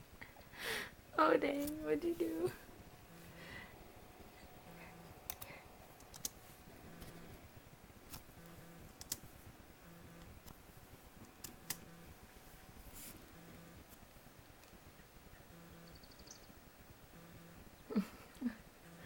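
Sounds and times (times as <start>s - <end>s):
clicks and taps on laptop keys: 5.3s - 6.4s, 9.0s - 9.3s.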